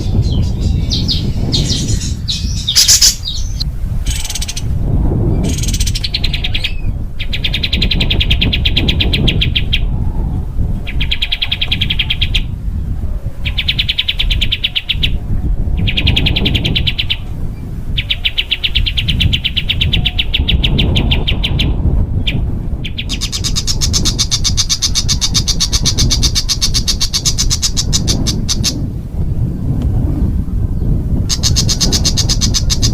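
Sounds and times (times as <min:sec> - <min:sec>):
songbird rattling trills: 0:00.0 - 0:04.7, 0:22.2 - 0:28.8, 0:31.3 - 0:32.9.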